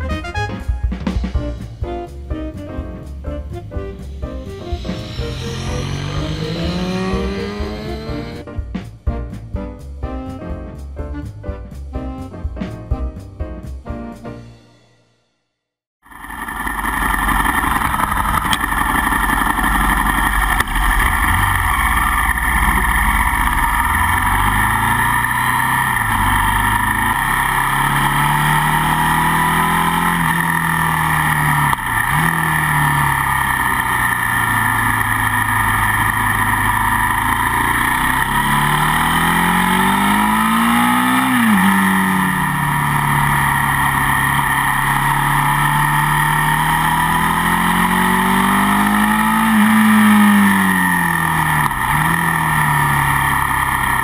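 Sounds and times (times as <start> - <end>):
high whine: 3.3 - 8.5, 16.0 - 54.0
motorcycle engine revving: 3.5 - 8.5, 16.0 - 54.0.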